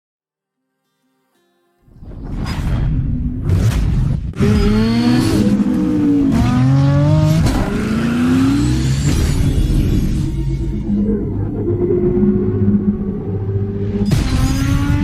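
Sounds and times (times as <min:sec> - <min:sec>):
car engine accelerating: 0:03.5 - 0:10.9.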